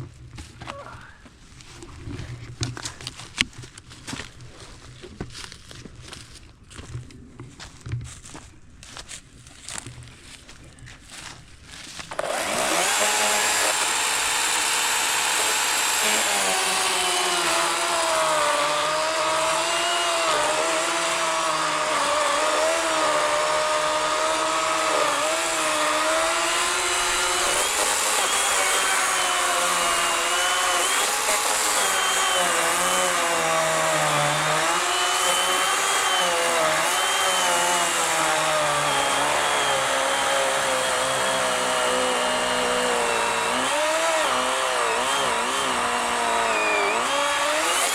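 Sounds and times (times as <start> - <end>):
electric chainsaw cutting log: 12.0 - 47.9.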